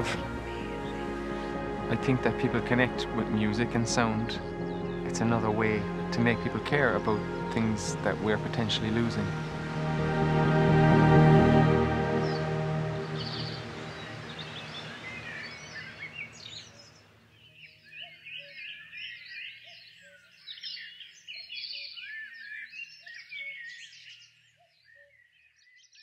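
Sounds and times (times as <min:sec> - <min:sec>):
songbirds singing and chirping: 0:00.0 - 0:09.8, 0:11.6 - 0:26.0
background music: 0:00.0 - 0:16.6.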